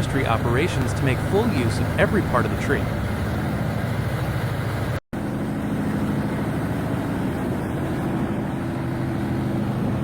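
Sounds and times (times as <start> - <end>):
heavy machine engine humming: 0.0 - 10.0.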